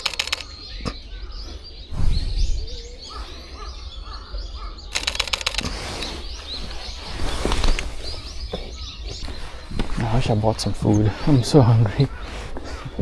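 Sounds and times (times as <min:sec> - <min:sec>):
camera shutter firing in bursts: 0:00.0 - 0:00.9, 0:04.9 - 0:06.2
small birds chirping: 0:00.0 - 0:13.0
low rumble: 0:01.9 - 0:03.2.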